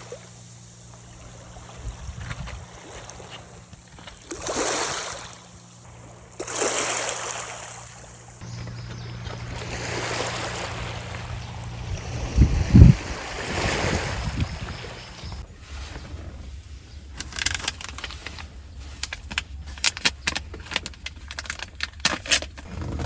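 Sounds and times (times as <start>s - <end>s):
small waves washing onto beach: 4.2s - 8.2s, 9.2s - 15.9s.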